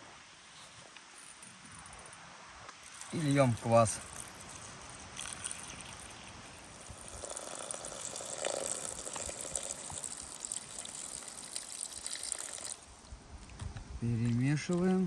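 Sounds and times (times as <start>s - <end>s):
liquid pouring onto chopped food: 2.8s - 13.1s.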